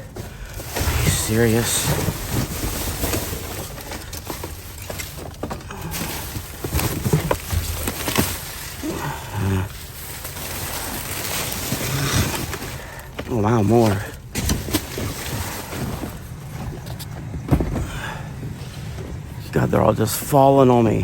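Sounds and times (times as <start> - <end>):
boxes knocking and sliding: 0.0 - 8.8, 10.3 - 19.4
plastic bags rustling: 0.0 - 21.0
person grunting: 8.8 - 9.8.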